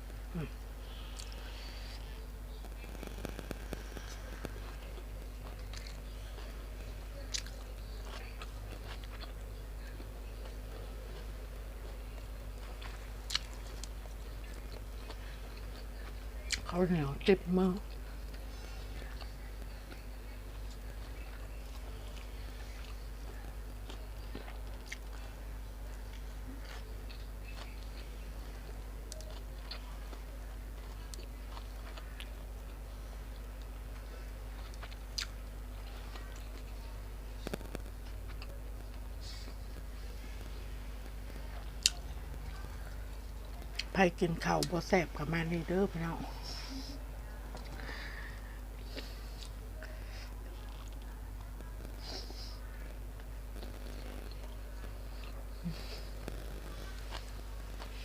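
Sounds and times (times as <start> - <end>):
steady low hum: 0.0 - 58.0
person chewing: 0.3 - 16.7, 20.7 - 25.3, 26.1 - 43.9.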